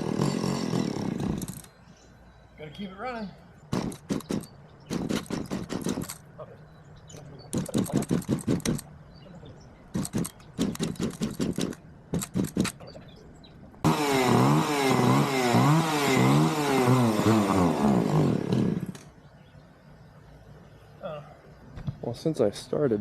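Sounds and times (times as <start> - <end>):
two-stroke chainsaw sputtering and revving: 0.0 - 1.6, 13.8 - 19.1.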